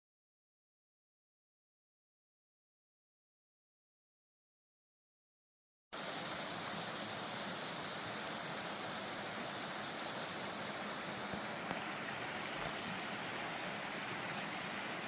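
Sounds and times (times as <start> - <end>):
stream water rushing: 6.0 - 15.0.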